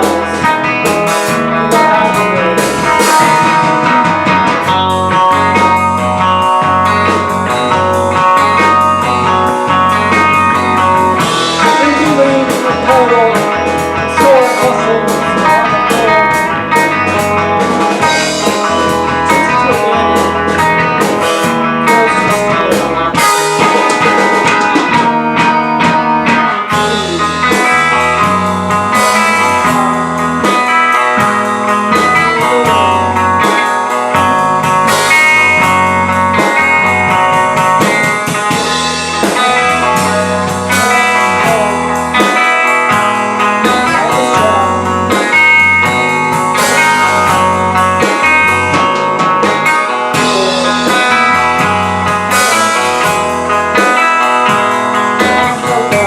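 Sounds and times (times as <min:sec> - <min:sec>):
drum kit: 0:00.0 - 0:56.0
electric guitars: 0:00.0 - 0:56.0
rock band playing live: 0:00.0 - 0:56.0.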